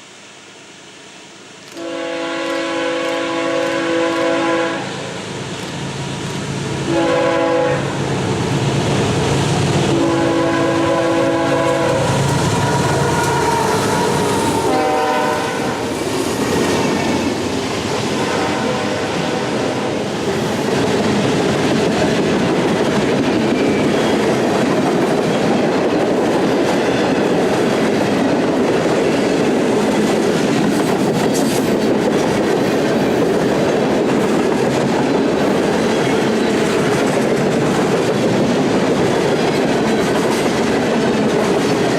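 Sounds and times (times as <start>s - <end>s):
train wheels clacking on rails: 1.7s - 41.9s
train horn blasts: 1.8s - 5.2s, 6.9s - 8.0s, 9.9s - 15.9s, 18.2s - 19.9s.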